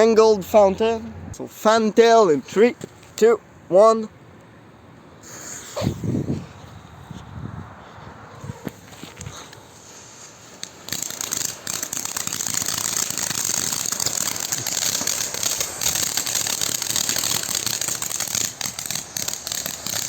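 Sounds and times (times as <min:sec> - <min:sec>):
firework fountain hissing and crackling: 0:05.2 - 0:06.2, 0:09.7 - 0:20.0.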